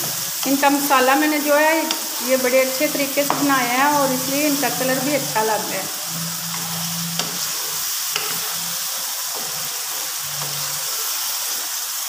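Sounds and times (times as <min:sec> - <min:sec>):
potatoes sizzling in oil: 0:00.0 - 0:12.0
spoon stirring and clicking on pan: 0:01.8 - 0:02.2, 0:02.9 - 0:03.8, 0:06.5 - 0:08.6.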